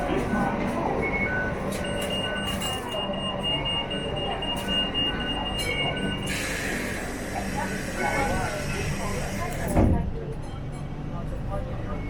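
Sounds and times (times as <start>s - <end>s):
train rumble and hum: 0.0s - 2.4s.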